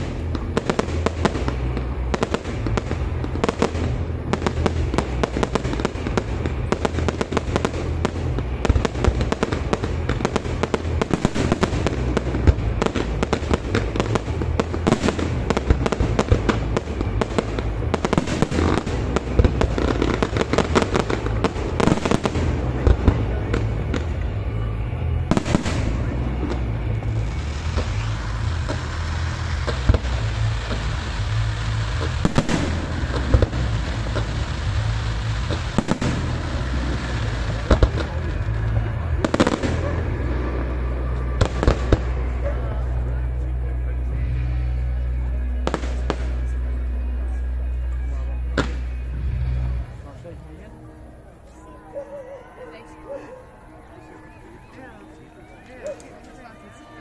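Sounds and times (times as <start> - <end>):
fireworks bangs and crackling: 0.0 - 51.8.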